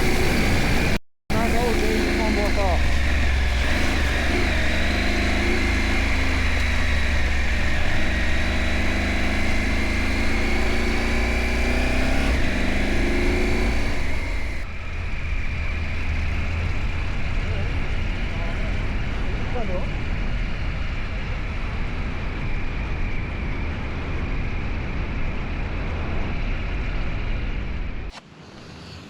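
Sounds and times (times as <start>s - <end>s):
motorcycle engine running: 0.0s - 28.1s
wind rumble on microphone: 14.6s - 28.1s.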